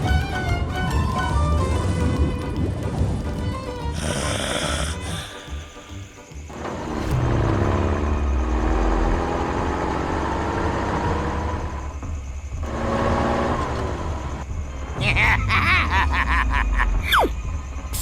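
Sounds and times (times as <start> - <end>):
vehicle engine running: 5.2 - 15.0.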